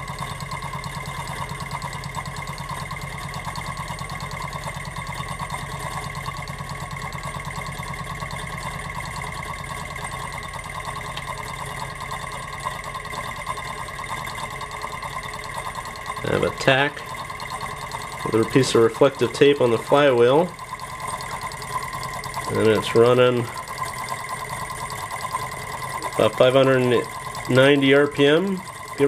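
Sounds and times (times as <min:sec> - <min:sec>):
steady mechanical whine: 0:00.0 - 0:29.0
stirling engine running: 0:00.0 - 0:29.0.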